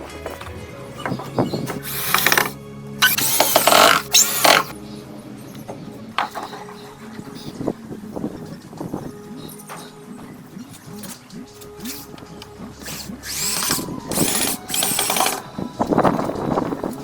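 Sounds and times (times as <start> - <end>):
soft background music: 0.0 - 17.0
handheld power tool running: 1.8 - 4.7, 12.8 - 15.4.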